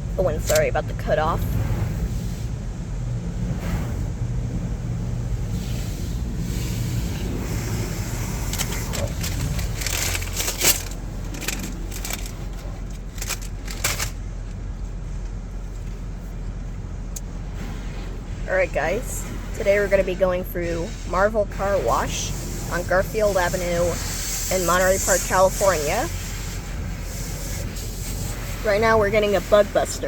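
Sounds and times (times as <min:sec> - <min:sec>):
car rumble inside cabin: 0:00.0 - 0:30.0
sharp clicks and crackles: 0:08.2 - 0:14.6.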